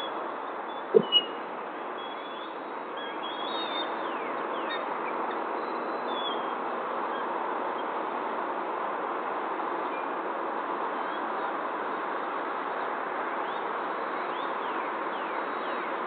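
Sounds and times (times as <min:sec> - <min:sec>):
faint bird chirps: 0:00.0 - 0:07.3
outdoor background hiss: 0:00.0 - 0:16.0.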